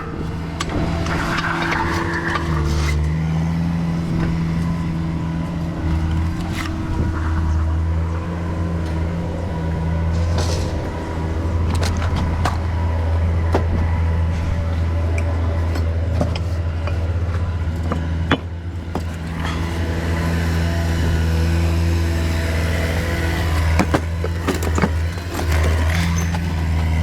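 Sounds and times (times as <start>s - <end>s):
motor humming: 0.0s - 27.0s
clicks and knocks: 11.6s - 19.9s.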